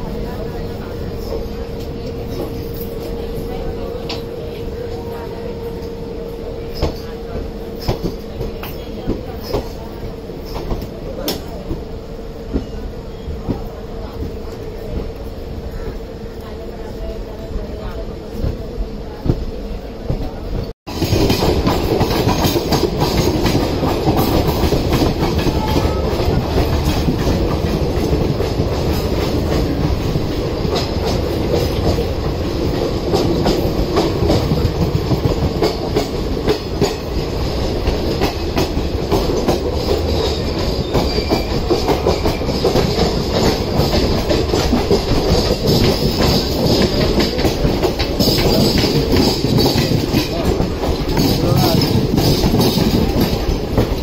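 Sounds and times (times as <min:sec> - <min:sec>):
steady train rumble: 0:00.0 - 0:54.0
train wheels clattering over rail joints: 0:20.9 - 0:54.0.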